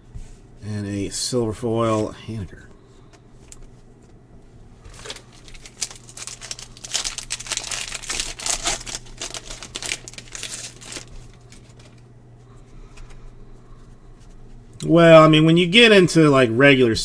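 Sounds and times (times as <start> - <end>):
foil wrapper crinkling and tearing: 4.8 - 12.0.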